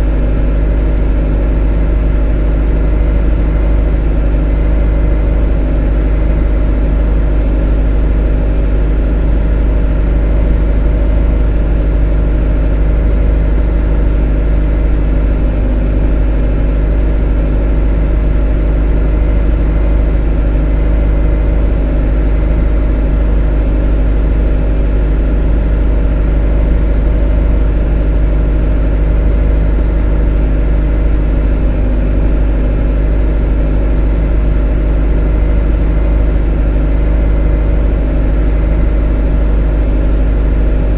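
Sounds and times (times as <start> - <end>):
motor humming steadily: 0.0 - 40.9.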